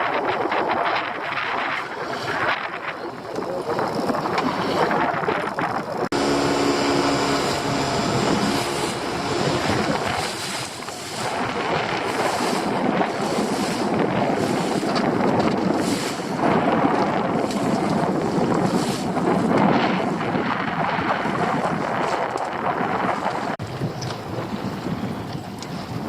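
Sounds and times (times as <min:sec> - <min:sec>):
boat engine: 0:00.0 - 0:26.0
rushing water: 0:00.0 - 0:26.0
wind buffeting microphone: 0:00.0 - 0:26.0
steady tones: 0:06.1 - 0:11.6.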